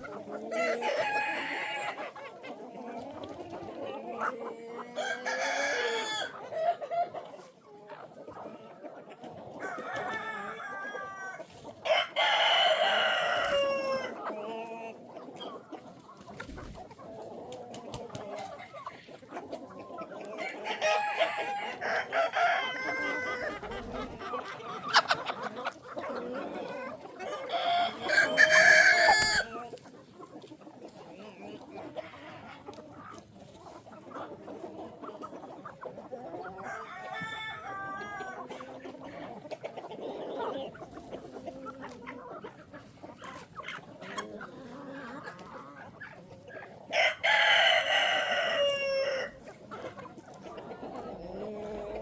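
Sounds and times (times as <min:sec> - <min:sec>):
chickens clucking: 0:00.0 - 0:52.0
rooster crowing: 0:27.5 - 0:29.5, 0:47.0 - 0:49.4.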